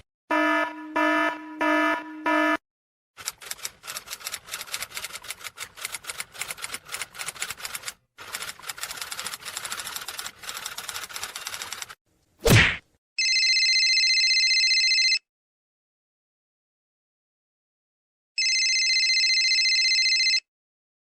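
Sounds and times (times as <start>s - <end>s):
typewriter keys clicking: 3.2s - 12.0s.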